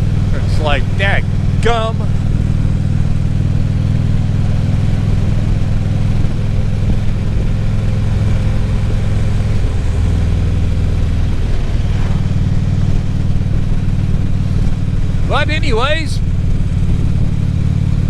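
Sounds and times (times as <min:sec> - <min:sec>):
motorcycle engine running: 0:00.0 - 0:18.0
road noise: 0:00.0 - 0:18.0.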